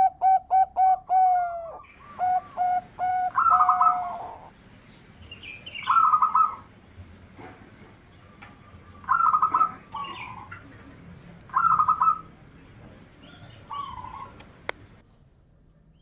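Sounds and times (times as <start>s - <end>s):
dove cooing: 0.0s - 4.6s, 5.8s - 6.7s, 8.2s - 10.8s, 11.5s - 12.4s, 13.2s - 14.7s.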